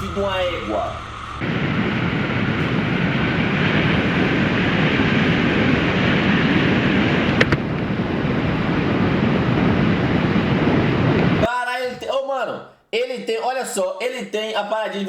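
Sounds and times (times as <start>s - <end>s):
motorcycle engine and road noise: 0.0s - 11.3s
wind rushing over microphone: 0.0s - 11.5s.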